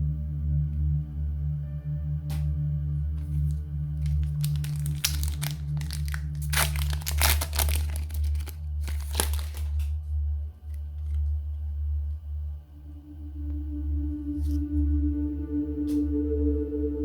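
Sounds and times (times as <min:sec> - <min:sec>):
low drone: 0:00.0 - 0:17.0
plastic packaging crinkling: 0:03.2 - 0:09.9, 0:10.7 - 0:11.3.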